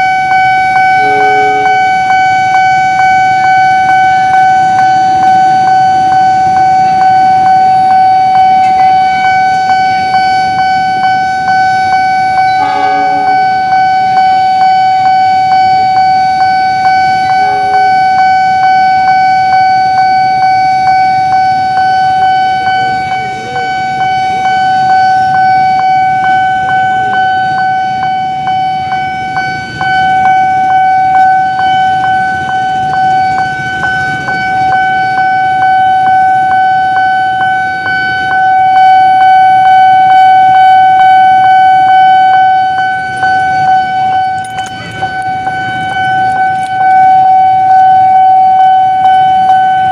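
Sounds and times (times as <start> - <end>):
level crossing alarm tone: 0.0 - 49.9
low traffic rumble: 0.0 - 49.9
regular ticks: 42.8 - 47.1.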